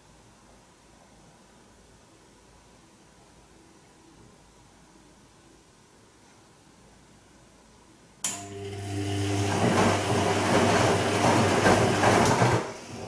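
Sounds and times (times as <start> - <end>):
washing machine humming: 8.3 - 13.0
washing machine water rushing: 8.3 - 13.0.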